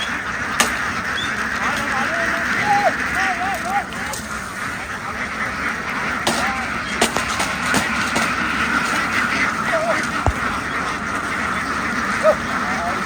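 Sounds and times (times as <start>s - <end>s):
flock of ducks quacking: 0.0s - 13.0s
sharp knocks: 6.2s - 9.4s, 10.0s - 11.2s.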